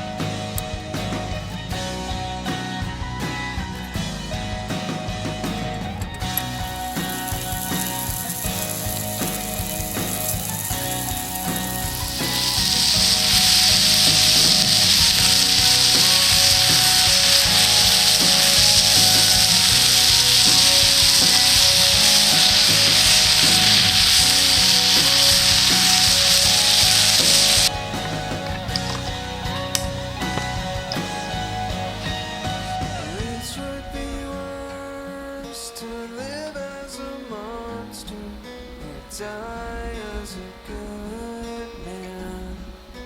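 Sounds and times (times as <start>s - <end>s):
background music: 0.0s - 43.0s
rice sizzling in a pan: 6.4s - 29.1s.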